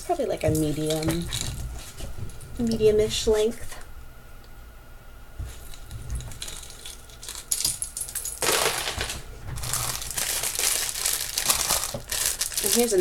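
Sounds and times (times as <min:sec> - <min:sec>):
plastic bags crinkling: 0:05.5 - 0:13.0
jewelry pieces clicking and clinking: 0:05.8 - 0:13.0.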